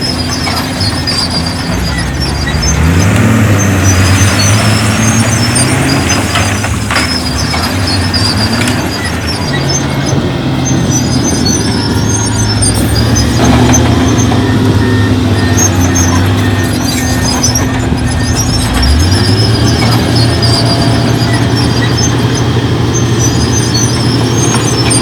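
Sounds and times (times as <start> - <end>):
heavy diesel engine revving: 0.0 - 25.0
high squeaks: 0.0 - 25.0.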